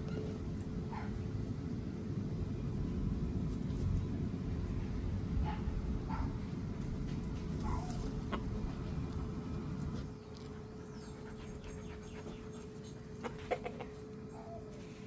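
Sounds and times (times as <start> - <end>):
chickens clucking: 7.7 - 8.9, 11.1 - 14.9.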